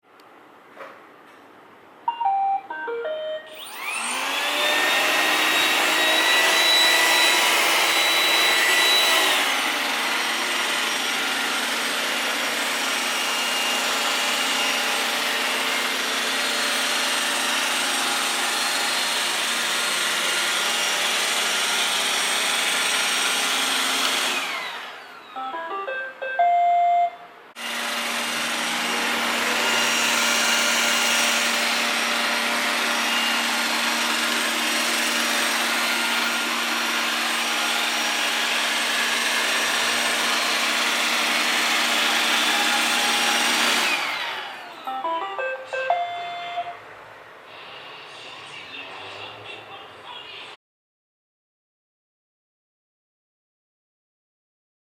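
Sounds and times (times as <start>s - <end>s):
short electronic beeps: 2.1s - 3.6s, 25.4s - 27.3s, 44.9s - 46.8s
robot vacuum running: 3.5s - 25.5s, 27.6s - 46.6s.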